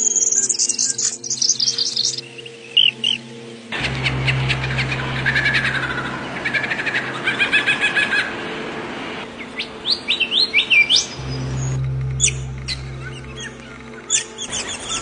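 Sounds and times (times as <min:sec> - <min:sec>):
birds chirping and whistling: 0:00.0 - 0:08.2, 0:09.4 - 0:15.0
low steady hum: 0:03.7 - 0:07.6, 0:11.0 - 0:15.0.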